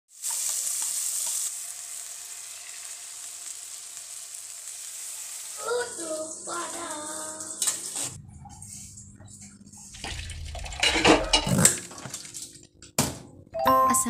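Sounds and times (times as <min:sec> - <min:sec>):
food sizzling in hot oil: 0:00.1 - 0:08.1.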